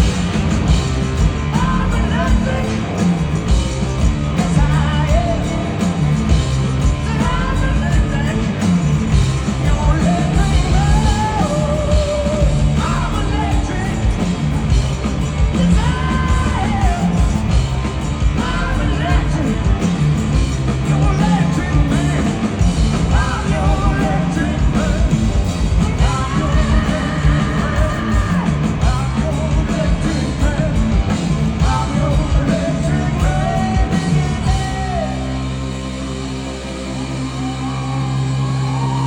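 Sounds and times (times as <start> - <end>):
rock band playing live: 0.0 - 39.0
singer wailing: 37.0 - 39.0.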